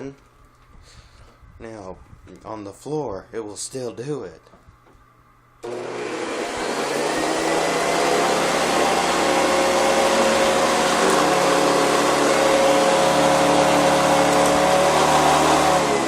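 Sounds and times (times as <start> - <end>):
vacuum cleaner running with whine: 5.6 - 16.0.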